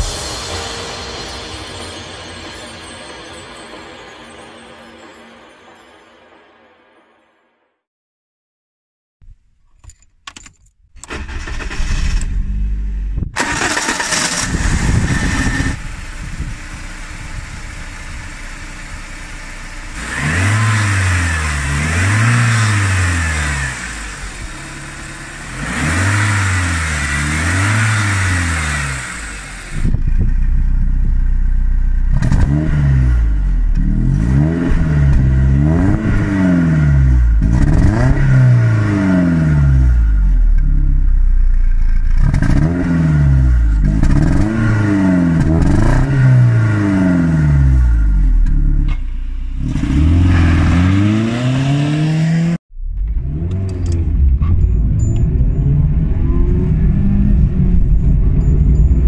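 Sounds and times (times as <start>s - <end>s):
car engine starting: 10.4s - 59.0s
car engine idling: 15.8s - 20.1s, 23.7s - 25.6s
engine revving in blips: 19.9s - 29.9s, 32.1s - 40.8s, 41.8s - 59.0s.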